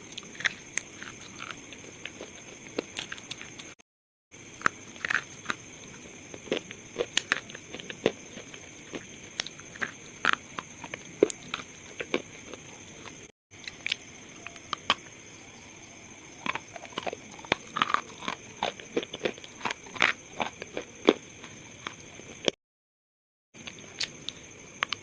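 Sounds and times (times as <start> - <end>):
slate crunching and snapping: 4.6 - 5.7, 6.3 - 14.0, 16.4 - 22.6.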